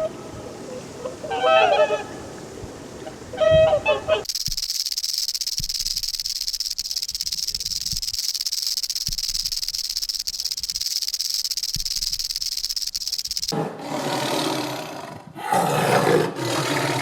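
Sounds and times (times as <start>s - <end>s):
rattlesnake tail rattling: 4.2s - 13.6s.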